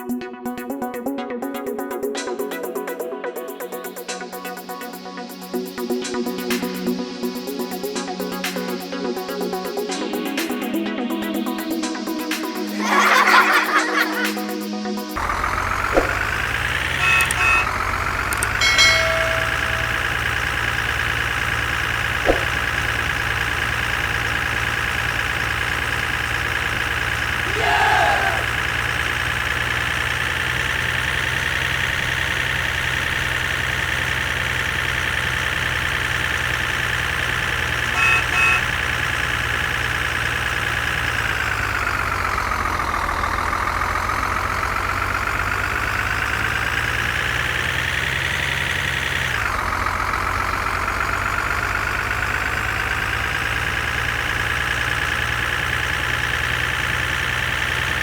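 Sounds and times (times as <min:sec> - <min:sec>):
toy vehicle engine whining: 0:15.2 - 0:58.0
short horn beeps: 0:16.9 - 0:17.9, 0:37.9 - 0:38.9.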